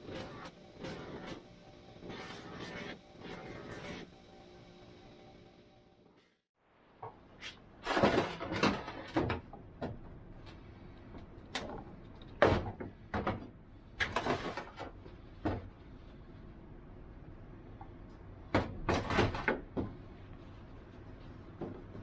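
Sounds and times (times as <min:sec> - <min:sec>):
knocks and clunks at workbench: 0:12.4 - 0:13.5.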